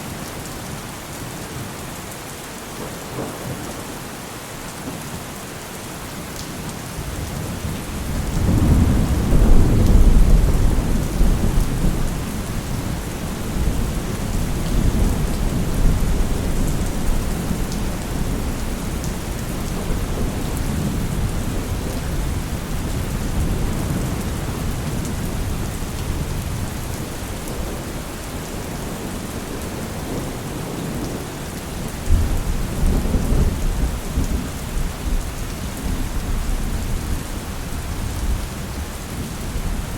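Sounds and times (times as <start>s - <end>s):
steady rain: 0.0s - 39.9s
rolling thunder: 7.4s - 27.8s.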